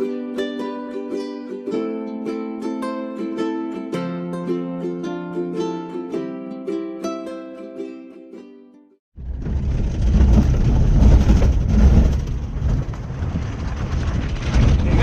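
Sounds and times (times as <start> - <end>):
ukulele music: 0.0 - 9.0
car driving on rough dirt road: 9.2 - 15.0.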